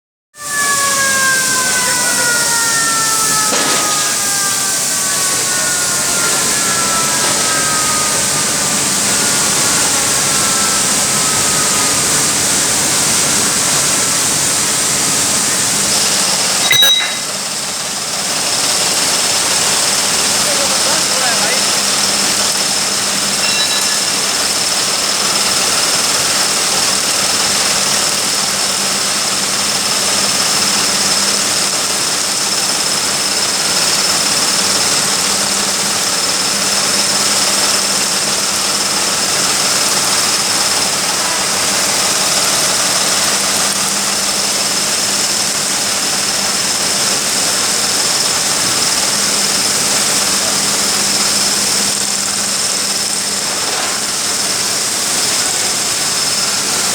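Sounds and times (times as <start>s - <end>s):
industrial roar of blast furnace: 0.4s - 56.9s
thin high whine: 0.5s - 18.7s, 20.4s - 25.2s.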